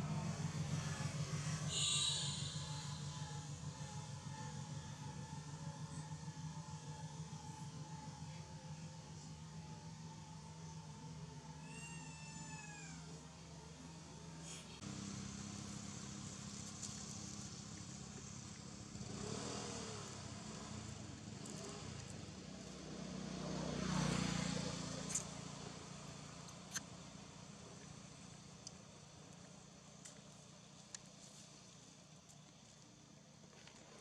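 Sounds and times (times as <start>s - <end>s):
motor vehicle passing: 14.3s - 28.2s.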